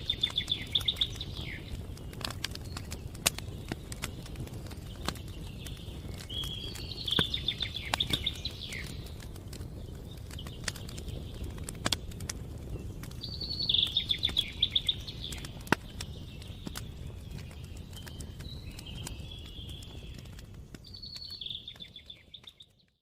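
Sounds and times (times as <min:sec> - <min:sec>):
songbird trilling: 0:00.0 - 0:01.8, 0:06.0 - 0:09.0, 0:13.2 - 0:16.7
wood fire crackling: 0:00.0 - 0:23.0.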